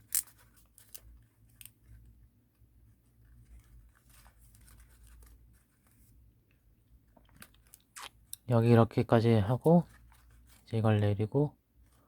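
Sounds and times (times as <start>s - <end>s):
paper rustling and creasing: 0.0s - 7.8s, 9.5s - 11.1s
low steady hum: 0.0s - 12.0s.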